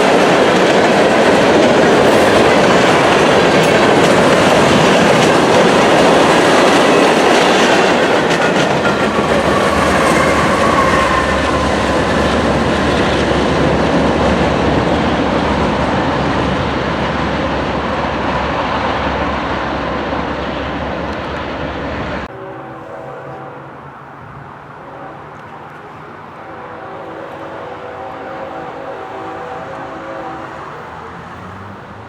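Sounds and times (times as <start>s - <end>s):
train cars clattering over rails: 0.0s - 22.3s.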